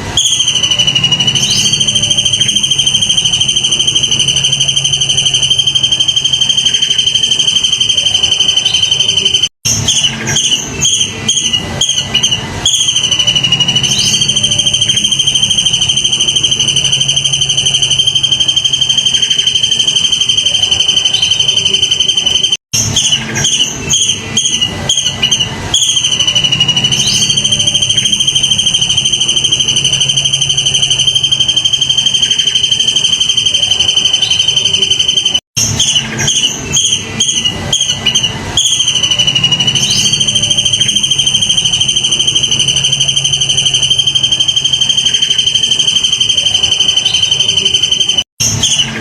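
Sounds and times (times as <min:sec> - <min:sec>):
insect pulsing trill: 0:00.2 - 0:48.9.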